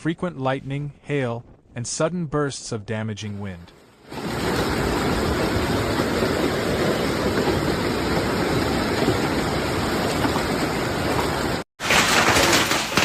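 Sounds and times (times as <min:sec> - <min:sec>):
wind blowing: 0:00.4 - 0:11.6
heavy rain pouring: 0:03.9 - 0:13.0.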